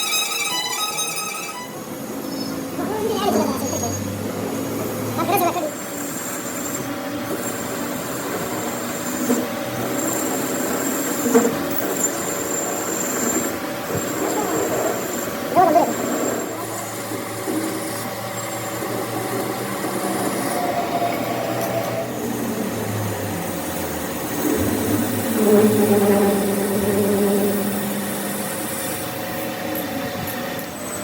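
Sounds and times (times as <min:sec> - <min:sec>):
machinery squealing tones: 0:00.0 - 0:31.0
workshop machinery humming: 0:11.8 - 0:31.0.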